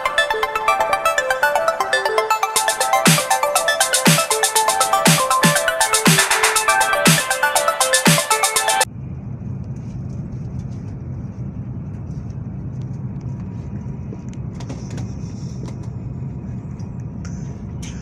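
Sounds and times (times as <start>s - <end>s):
train running low rumble: 8.9s - 18.0s.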